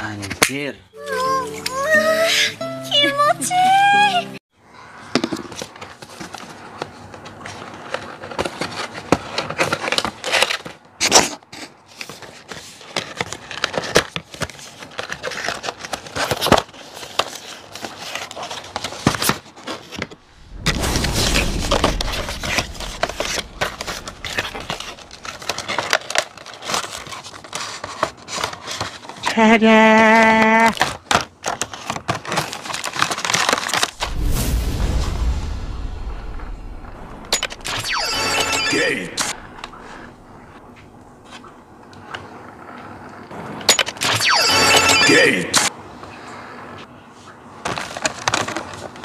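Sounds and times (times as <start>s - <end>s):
cardboard and plastic packaging handled: 5.1s - 20.3s, 22.6s - 34.0s, 47.2s - 49.0s.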